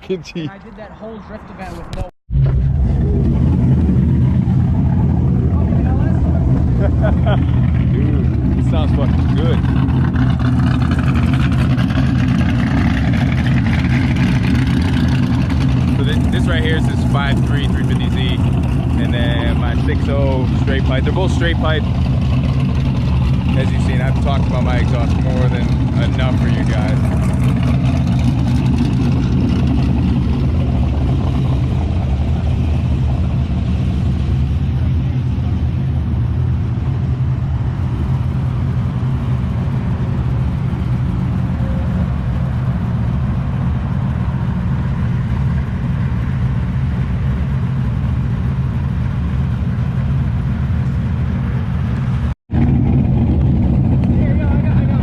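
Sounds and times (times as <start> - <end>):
vee eight engines idling: 2.6 - 55.0.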